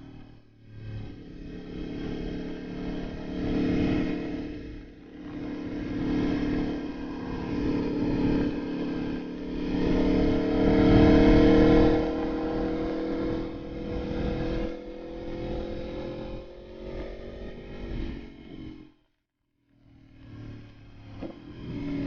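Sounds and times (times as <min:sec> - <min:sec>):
motorcycle engine revving: 0:00.0 - 0:19.1, 0:19.8 - 0:22.0.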